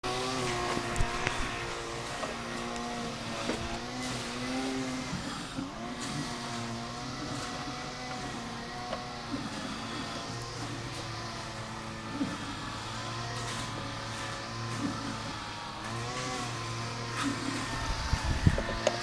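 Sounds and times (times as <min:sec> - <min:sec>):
mower engine running: 0:00.0 - 0:19.0.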